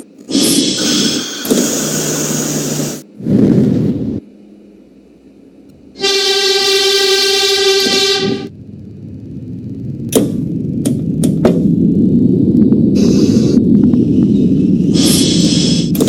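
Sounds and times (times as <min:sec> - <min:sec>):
low rumbling burst: 0:03.0 - 0:16.0
rushing train noise: 0:05.8 - 0:16.0
train horn blast: 0:05.9 - 0:08.6.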